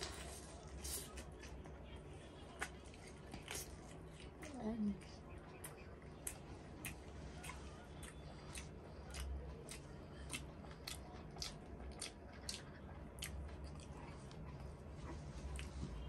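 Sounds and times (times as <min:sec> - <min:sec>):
person chewing with mouth clicks: 0:05.6 - 0:14.6, 0:15.4 - 0:16.0.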